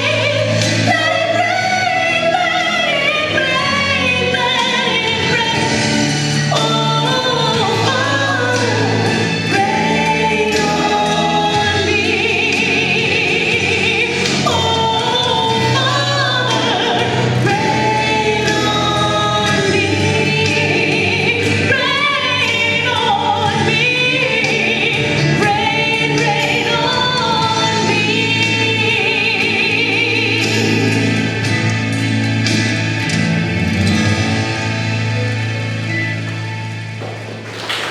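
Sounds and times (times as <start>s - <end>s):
person singing gospel: 0.0s - 31.3s.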